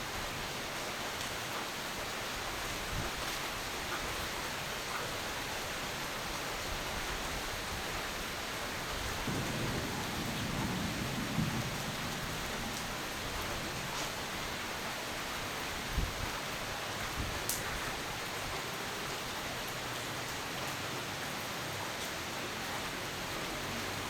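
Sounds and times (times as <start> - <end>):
steady rain: 0.0 - 24.0
thunder rumbling: 9.1 - 15.4.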